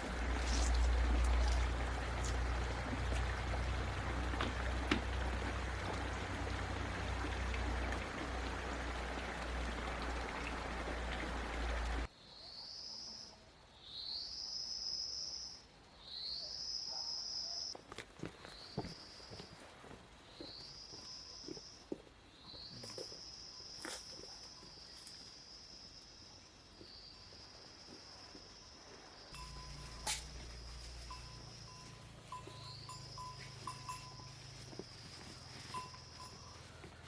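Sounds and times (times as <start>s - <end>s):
rushing stream water: 0.0s - 12.1s, 29.4s - 37.0s.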